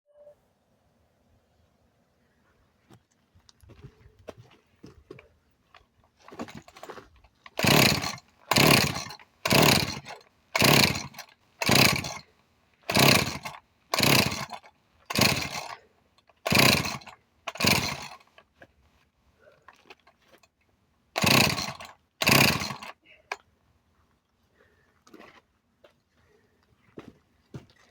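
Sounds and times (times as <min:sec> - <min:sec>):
chainsaw recoil starter pulls: 0:06.1 - 0:18.5, 0:21.2 - 0:23.4.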